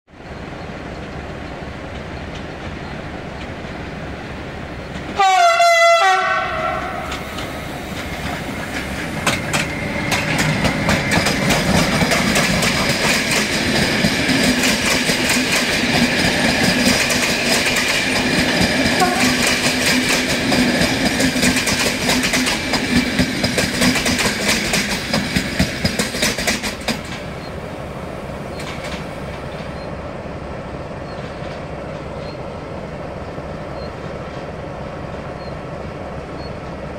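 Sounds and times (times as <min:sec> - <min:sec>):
train wheels clicking on rails: 0:00.6 - 0:05.3, 0:06.5 - 0:30.0, 0:31.0 - 0:36.9
locomotive horn blast: 0:05.2 - 0:07.1, 0:19.0 - 0:19.5.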